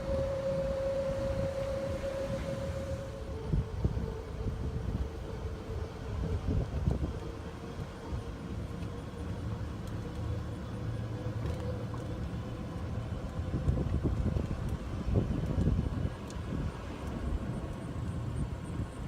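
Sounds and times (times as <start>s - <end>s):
faint held tone: 0.0s - 4.4s
golf cart rumbling: 3.3s - 19.0s.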